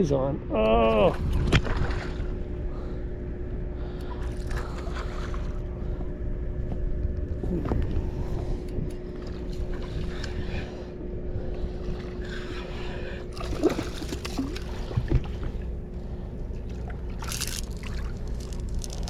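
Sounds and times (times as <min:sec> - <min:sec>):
water sloshing against a kayak: 0:01.1 - 0:02.6, 0:08.4 - 0:19.0
fish splashing: 0:13.3 - 0:15.6, 0:16.7 - 0:19.0.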